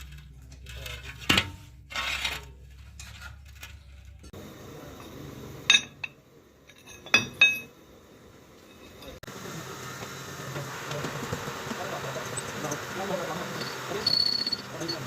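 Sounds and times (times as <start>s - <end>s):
metal-on-metal clanks: 0.0s - 4.3s, 5.0s - 7.8s
metal scrape: 0.0s - 4.4s.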